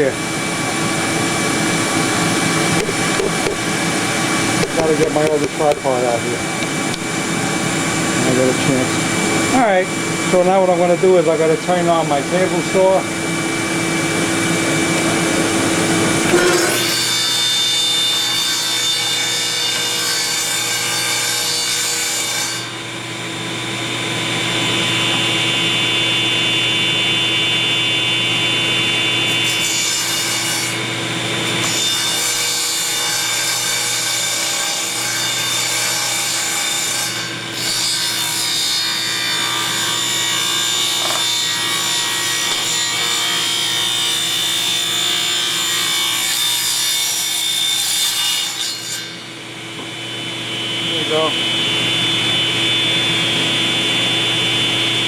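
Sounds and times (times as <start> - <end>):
shop vac running: 0.0 - 18.1, 22.6 - 29.7, 34.0 - 45.9, 49.4 - 55.0
table saw cutting wood: 0.0 - 55.0.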